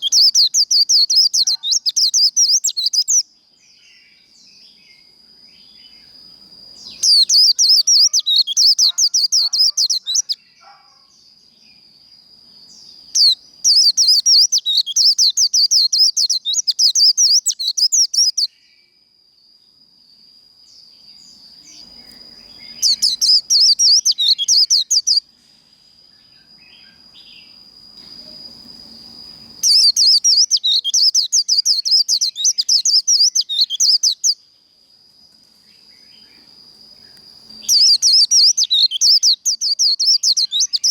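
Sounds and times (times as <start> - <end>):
bird chattering song: 0.0 - 5.0, 6.8 - 11.2, 12.7 - 18.5, 21.6 - 25.2, 29.4 - 34.4, 37.6 - 40.9.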